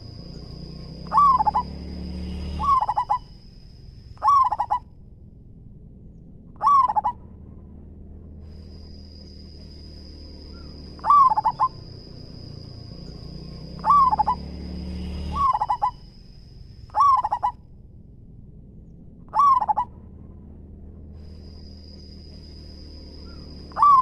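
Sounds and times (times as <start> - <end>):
dove cooing: 1.0 - 1.8, 2.5 - 3.3, 4.2 - 4.8, 6.6 - 7.2, 10.5 - 12.0, 13.7 - 14.5, 15.3 - 16.0, 16.9 - 17.6, 19.3 - 19.9, 23.3 - 24.0.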